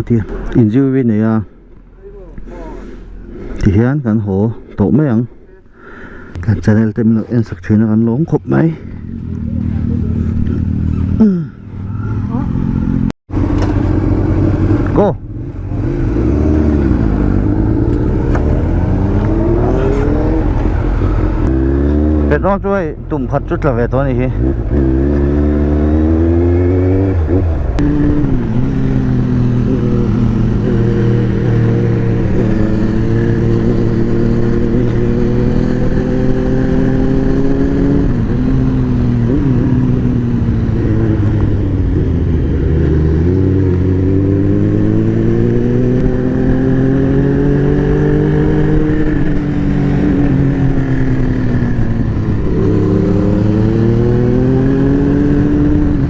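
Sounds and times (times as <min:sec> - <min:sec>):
motorbike engine accelerating: 0:08.5 - 0:22.8, 0:24.0 - 0:56.0.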